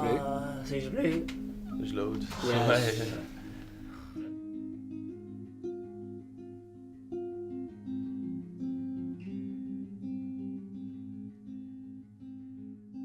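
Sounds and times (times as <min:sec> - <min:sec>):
low sustained tone: 0:00.0 - 0:04.5
acoustic guitar plucked notes: 0:00.0 - 0:13.0.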